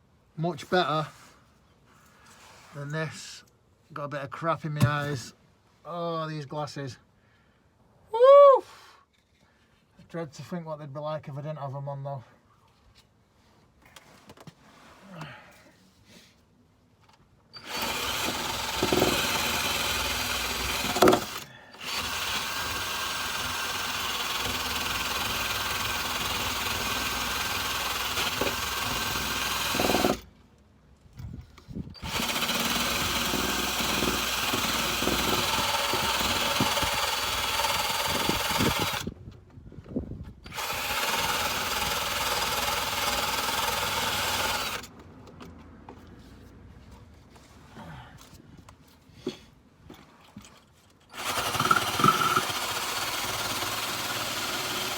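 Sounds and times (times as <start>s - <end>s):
drill wire brush scouring rust: 17.6s - 30.3s, 32.0s - 39.1s, 40.5s - 44.9s, 51.2s - 54.9s.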